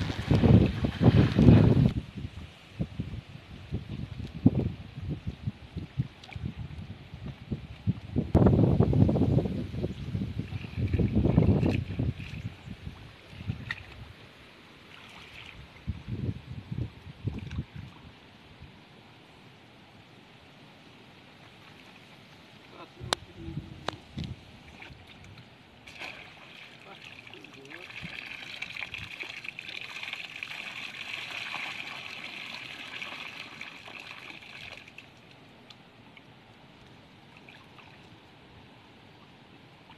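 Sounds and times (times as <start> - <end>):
water sloshing and splashing: 0.0 - 2.0, 10.4 - 14.1, 14.8 - 15.9, 24.2 - 38.3.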